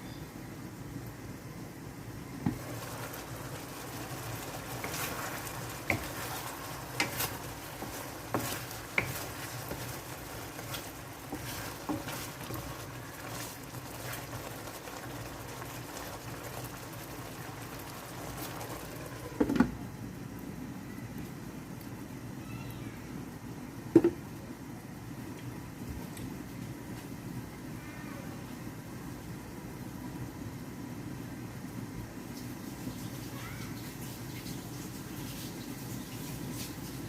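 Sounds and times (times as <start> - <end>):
sauce bubbling in a pan: 2.2 - 20.4, 30.3 - 37.0.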